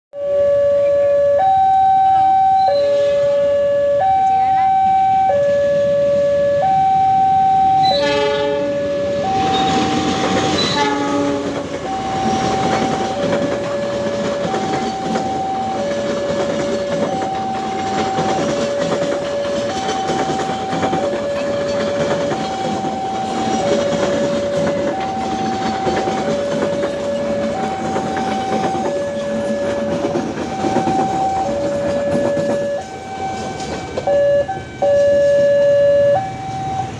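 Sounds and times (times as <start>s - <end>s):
two-tone warning siren: 0.1s - 36.9s
train horn: 7.8s - 12.6s
train wheels clattering on rails: 9.3s - 34.2s.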